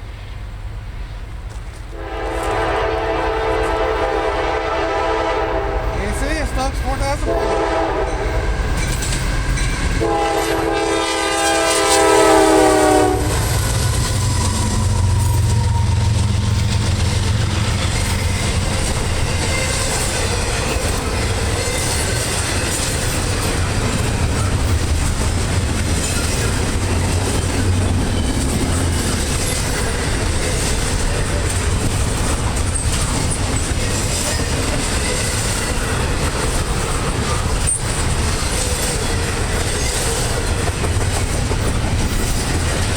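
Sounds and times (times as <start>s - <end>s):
locomotive rumbling past: 0.0s - 42.9s
train wheels clickety-clack: 1.3s - 42.9s
locomotive horn blast: 1.9s - 8.7s, 10.0s - 18.0s.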